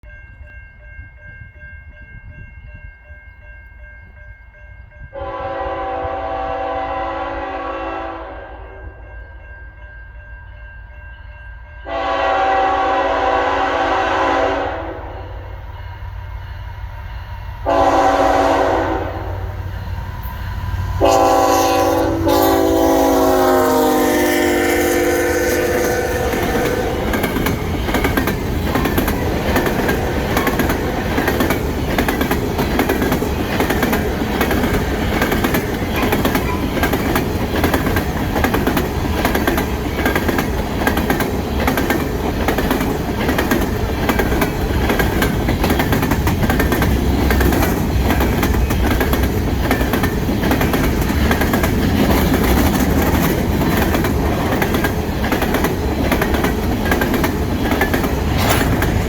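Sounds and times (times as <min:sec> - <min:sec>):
train wheels clicking over rail joints: 0:19.6 - 0:59.0
freight cars rumbling and rattling: 0:26.2 - 0:59.0.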